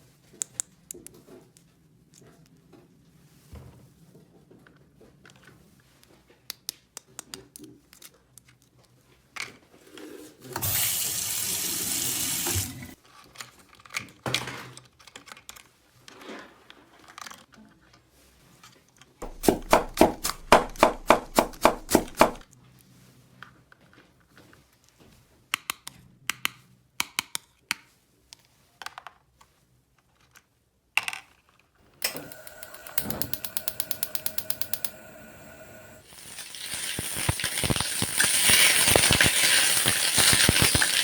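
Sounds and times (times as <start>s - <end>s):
toy faucet running water: 10.6s - 13.0s, 32.0s - 41.0s
plastic parts clicking: 36.1s - 41.0s.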